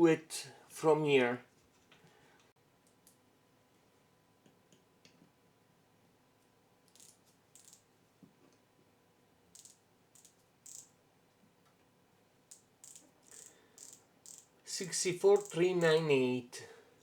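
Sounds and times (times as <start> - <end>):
micrometer ratchet clicks: 6.9 - 7.8, 9.5 - 10.9, 12.5 - 16.1.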